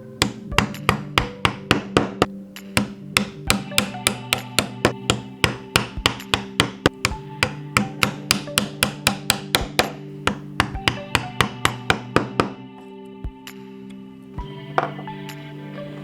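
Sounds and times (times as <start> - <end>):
soft background music: 0.0 - 16.0
mallet striking chisel: 0.2 - 12.5.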